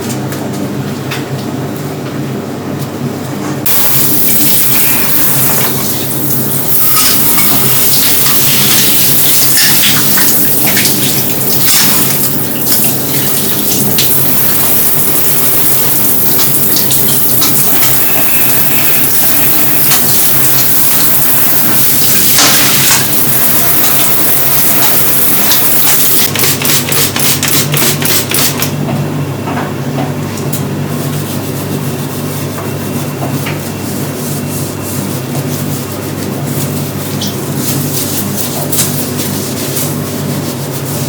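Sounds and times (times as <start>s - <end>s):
water running from a tap: 3.7s - 27.2s.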